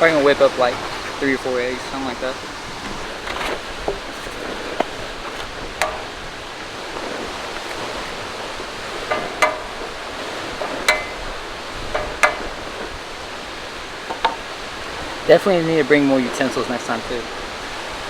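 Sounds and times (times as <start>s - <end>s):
rushing water and open air: 0.0s - 18.0s
cooking gear clinking: 2.7s - 14.6s.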